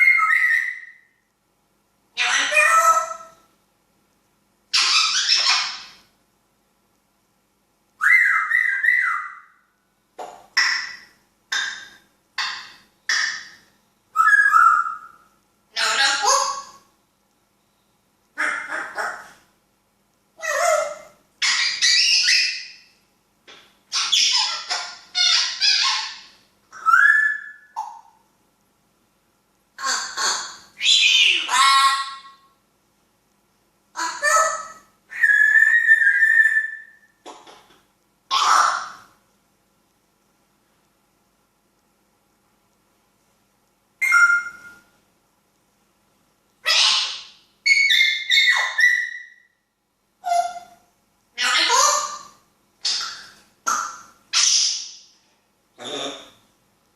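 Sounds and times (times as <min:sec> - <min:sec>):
parrot squawking: 0:00.0 - 0:01.0, 0:02.2 - 0:03.4, 0:04.7 - 0:06.0, 0:08.0 - 0:09.6, 0:10.5 - 0:13.6, 0:14.2 - 0:16.8, 0:18.4 - 0:19.4, 0:20.4 - 0:22.9, 0:23.9 - 0:28.1, 0:29.8 - 0:32.4, 0:33.9 - 0:37.5, 0:38.3 - 0:39.1, 0:44.0 - 0:44.8, 0:46.6 - 0:49.5, 0:50.2 - 0:50.8, 0:51.4 - 0:55.1.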